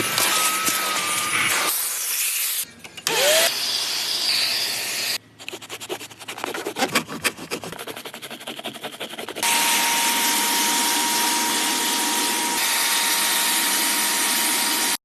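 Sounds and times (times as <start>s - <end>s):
rubbing and scraping strokes: 5.2s - 9.5s.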